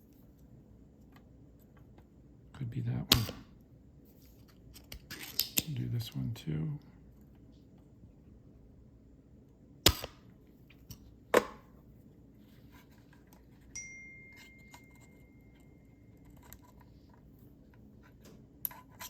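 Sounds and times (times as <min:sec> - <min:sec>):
faint thin high tone: 0:13.7 - 0:16.3.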